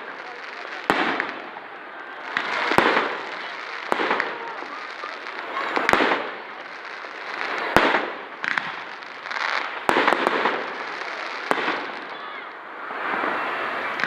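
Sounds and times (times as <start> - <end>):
fireworks bangs: 0.0 - 14.0
fireworks crackling hiss: 0.0 - 14.0.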